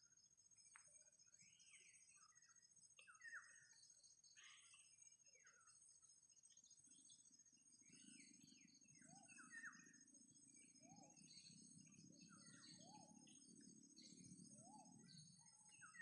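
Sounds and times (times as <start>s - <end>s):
birds chirping: 6.5s - 16.0s.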